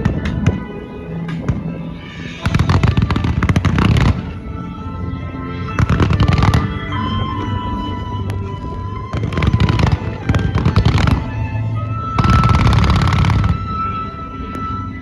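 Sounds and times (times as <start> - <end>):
music over loudspeakers: 0.0 - 15.0
fireworks bursting and crackling: 1.4 - 4.4, 5.8 - 6.9, 9.1 - 11.4, 12.2 - 13.8.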